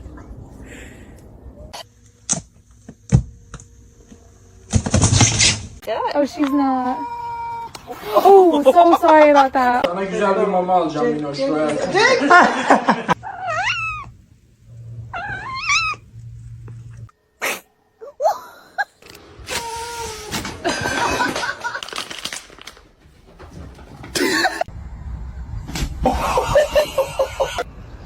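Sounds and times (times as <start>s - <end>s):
cat meowing: 13.2s - 14.1s, 15.1s - 16.0s.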